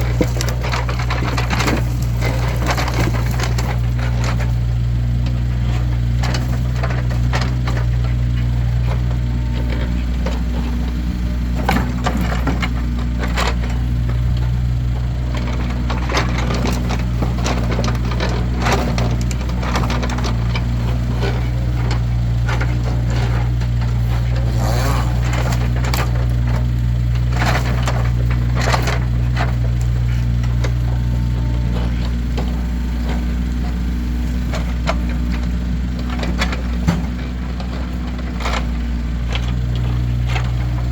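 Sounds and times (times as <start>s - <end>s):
firewood logs clattering: 0.0s - 40.9s
low engine hum: 0.0s - 40.9s.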